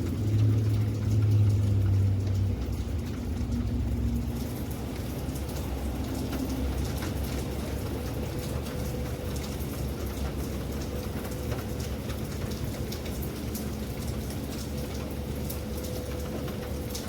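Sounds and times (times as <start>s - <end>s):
low steady rumble: 0.0s - 17.0s
raindrops striking a surface: 0.0s - 17.0s.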